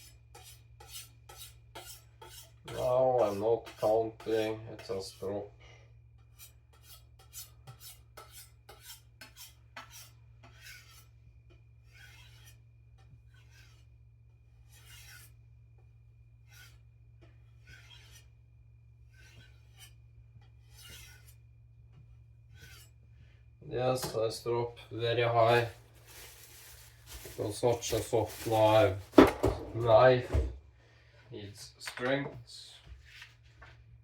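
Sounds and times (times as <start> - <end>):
knife scraping along strop: 0.0 - 5.4, 6.2 - 15.5, 16.4 - 21.5, 22.3 - 23.1.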